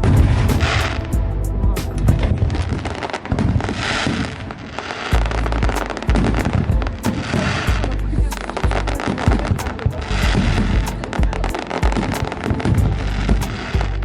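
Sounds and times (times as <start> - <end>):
heavy low firework booms: 0.0 - 4.2
fireworks crackling and banging: 0.0 - 14.0
music: 0.0 - 14.0.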